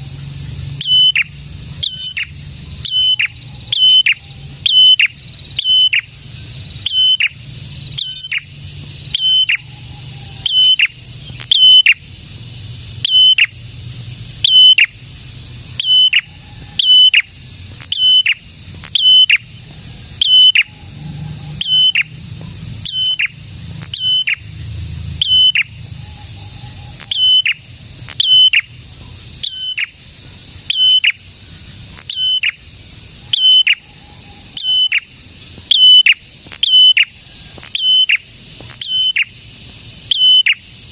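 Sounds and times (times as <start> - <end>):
bird singing sharp high notes: 0.8 - 6.2, 6.8 - 9.8, 10.4 - 12.1, 13.0 - 13.6, 14.4 - 15.0, 15.8 - 19.5, 21.6 - 22.2, 22.8 - 24.5, 25.2 - 28.7, 35.7 - 37.1.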